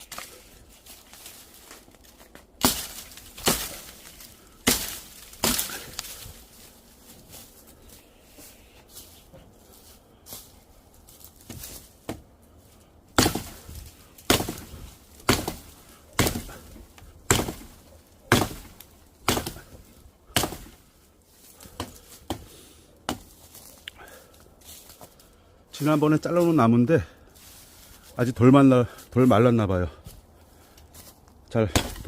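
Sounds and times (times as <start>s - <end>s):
axe chopping firewood: 1.2s - 6.4s, 11.4s - 12.3s, 13.1s - 23.6s, 31.6s - 32.0s.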